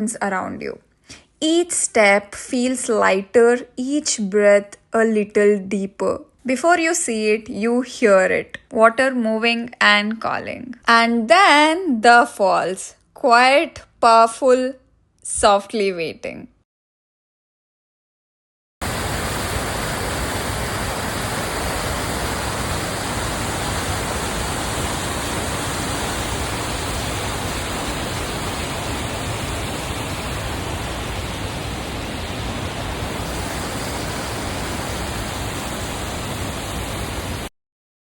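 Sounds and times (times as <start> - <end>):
waterfall rushing: 18.8 - 37.5.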